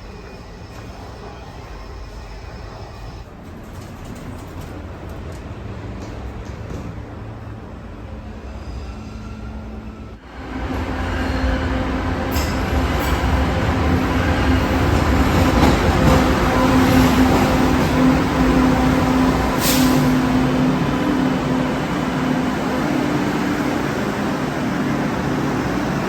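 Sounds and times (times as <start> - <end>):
train rumble and motor hum: 0.0 - 8.6, 9.4 - 26.0
high hisses or squeals: 19.5 - 20.3.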